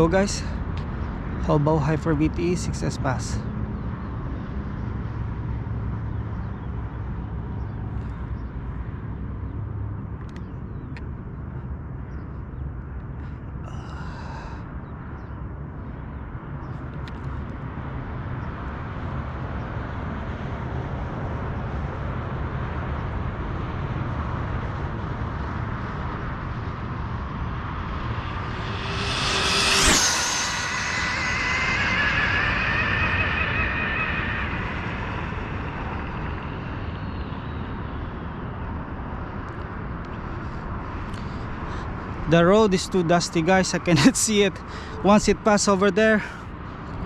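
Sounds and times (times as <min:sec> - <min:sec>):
road noise: 0:00.0 - 0:47.0
wind: 0:00.0 - 0:47.0
rc car speeding past with whine: 0:26.3 - 0:38.4.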